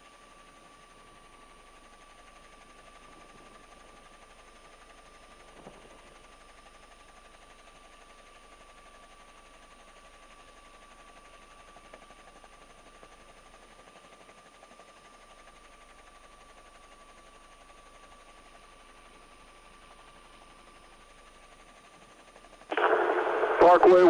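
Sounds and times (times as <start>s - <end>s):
police radio hiss: 22.7s - 24.0s
radio click: 22.7s - 24.0s.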